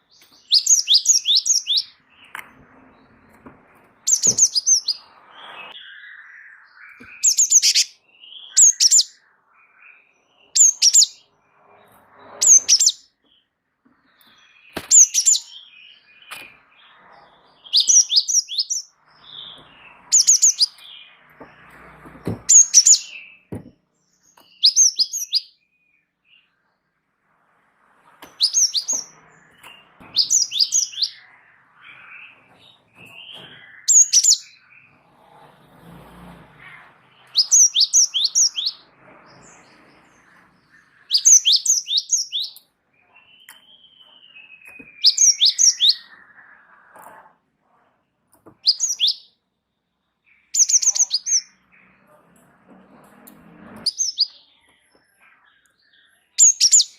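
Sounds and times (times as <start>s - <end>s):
bird singing high notes: 4.0s - 11.4s, 12.2s - 13.2s, 28.3s - 35.0s.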